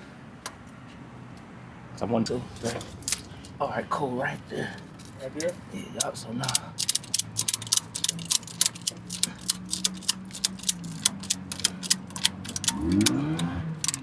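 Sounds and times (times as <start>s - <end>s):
engine idling and revving: 0.5s - 14.0s
ratchet clicking: 2.6s - 3.6s, 4.8s - 14.0s.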